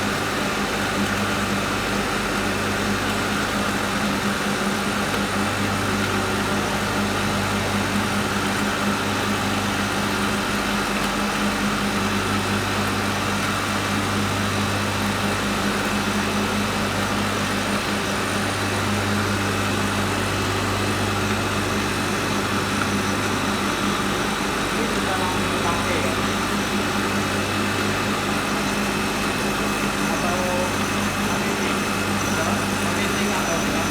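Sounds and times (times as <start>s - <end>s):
food processor motor running: 0.0s - 33.9s.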